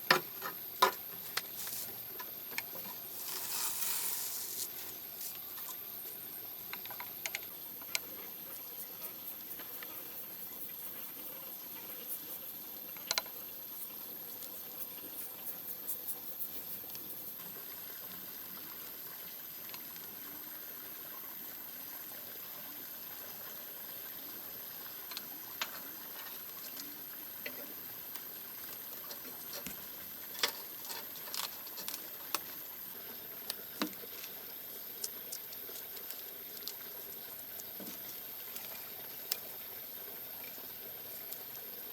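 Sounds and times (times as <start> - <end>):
food cooking hiss: 0.0 - 6.7.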